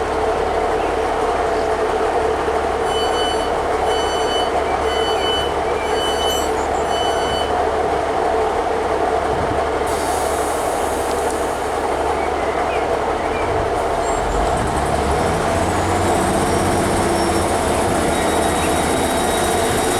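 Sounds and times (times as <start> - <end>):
diesel train engine running: 0.0 - 19.9
door warning beeps: 2.9 - 7.6.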